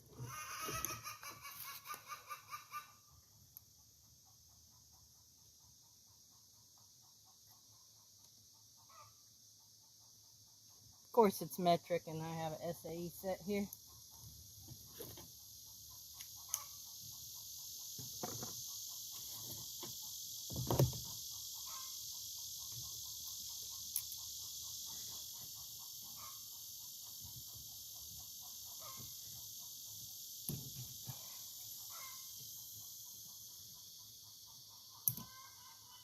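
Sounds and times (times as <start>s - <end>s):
chickens clucking: 0.2s - 3.0s, 15.0s - 19.8s, 21.4s - 30.0s, 31.0s - 32.6s, 33.2s - 36.0s
steady high hiss: 16.0s - 36.0s.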